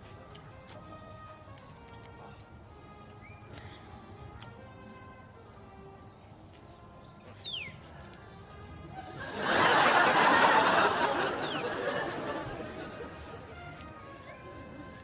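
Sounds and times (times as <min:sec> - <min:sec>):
faint background music: 0:00.0 - 0:15.0
studio audience laughter: 0:09.2 - 0:13.2.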